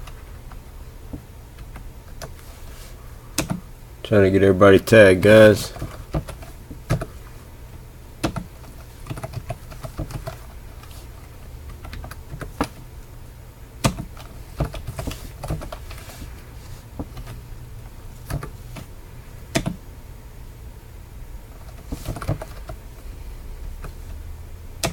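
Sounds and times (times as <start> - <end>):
steady low hum: 0.0 - 24.9
typing on keyboard: 3.4 - 3.6, 8.2 - 10.5, 13.8 - 15.8, 19.5 - 19.8, 21.6 - 22.8.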